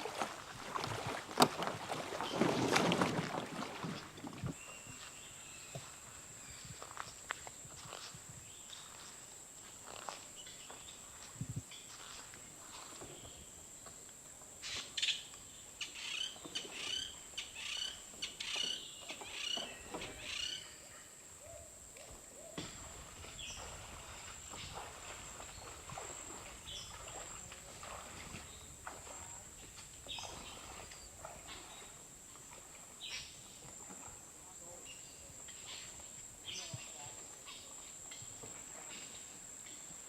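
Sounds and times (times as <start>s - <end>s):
bird calling: 15.8s - 21.7s.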